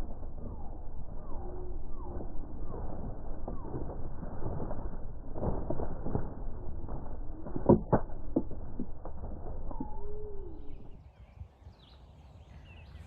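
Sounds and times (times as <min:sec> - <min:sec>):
faint high bird chirps: 0:00.4 - 0:03.9, 0:09.6 - 0:13.0.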